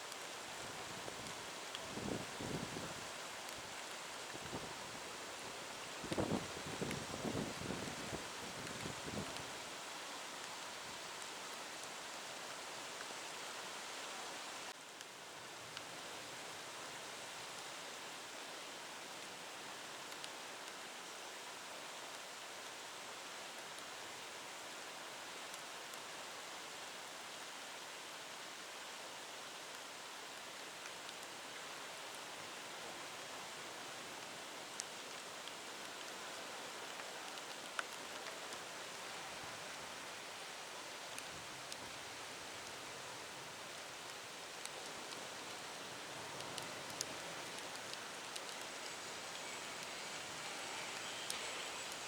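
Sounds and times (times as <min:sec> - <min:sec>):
heavy rain and wind hiss: 0:00.0 - 0:52.0
faint ticks: 0:01.2 - 0:04.7, 0:05.9 - 0:09.6, 0:29.6 - 0:52.0.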